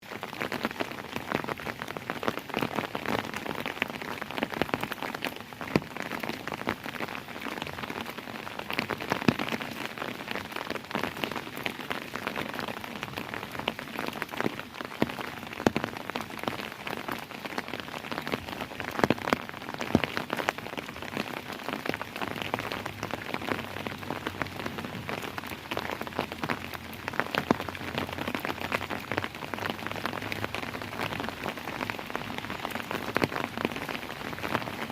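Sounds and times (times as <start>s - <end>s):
rain hissing: 0.1s - 34.9s.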